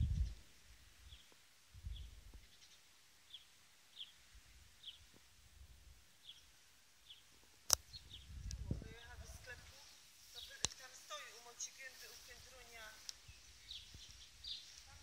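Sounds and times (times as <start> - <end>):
faint bird chirps: 13.1 - 15.0.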